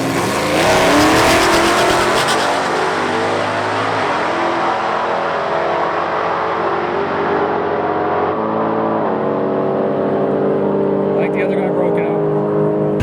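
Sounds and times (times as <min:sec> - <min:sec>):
drag racers accelerating hard: 0:00.0 - 0:04.0.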